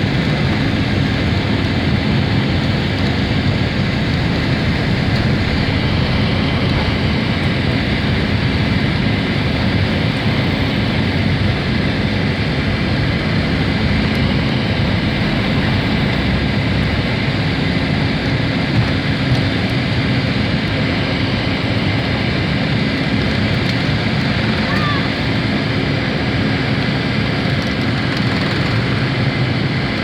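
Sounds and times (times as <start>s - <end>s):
low rumble: 0.0s - 11.9s
jet engines and airflow in cabin: 0.0s - 30.0s.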